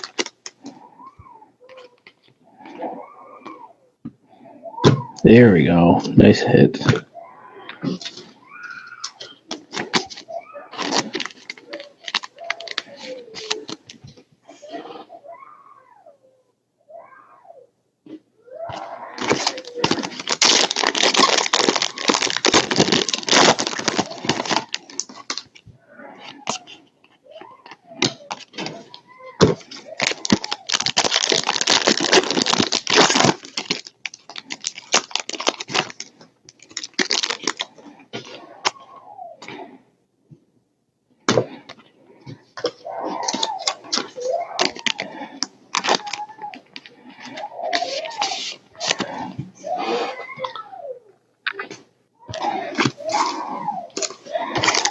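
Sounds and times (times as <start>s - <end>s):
foil wrapper tearing and crinkling: 0.0s - 0.5s, 9.1s - 13.8s, 19.2s - 25.6s, 29.5s - 37.7s, 45.7s - 46.4s, 54.0s - 54.9s.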